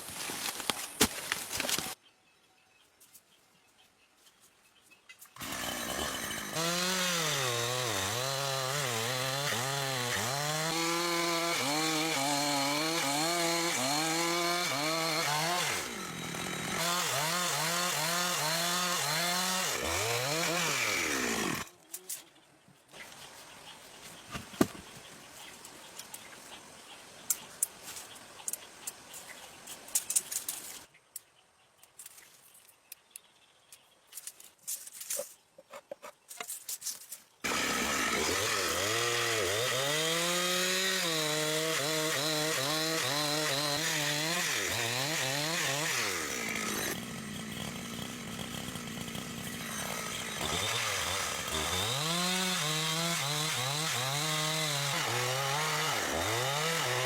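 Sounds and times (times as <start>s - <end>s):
chainsaw cutting timber: 5.4s - 21.7s, 37.4s - 57.0s.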